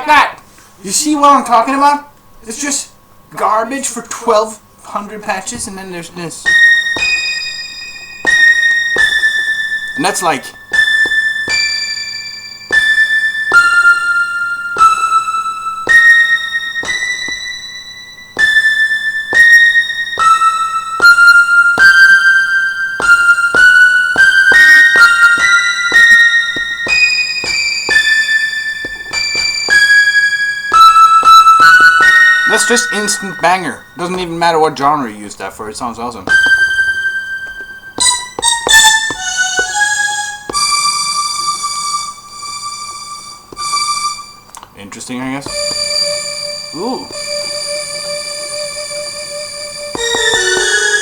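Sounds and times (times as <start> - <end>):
sharp taps on drum pads: 6.5 - 7.4, 8.3 - 9.3, 16.8 - 17.5
synth keyboard melody: 6.5 - 34.6, 36.3 - 44.6, 45.4 - 51.0
bright synth notes: 49.6 - 51.0.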